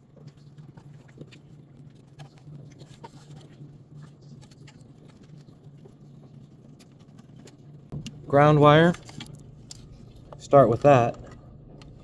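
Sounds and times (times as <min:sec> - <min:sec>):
low hum: 0:07.9 - 0:12.0.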